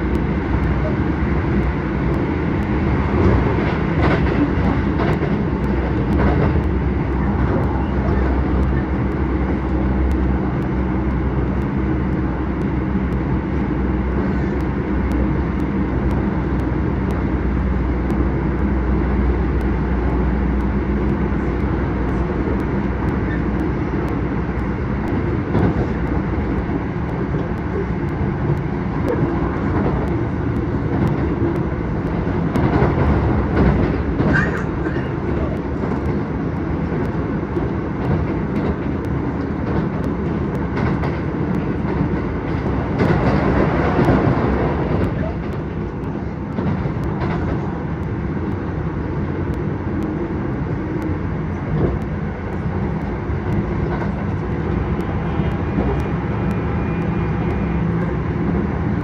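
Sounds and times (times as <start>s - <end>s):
train wheels on rails: 0.0s - 59.0s
faint clicks: 4.0s - 13.8s.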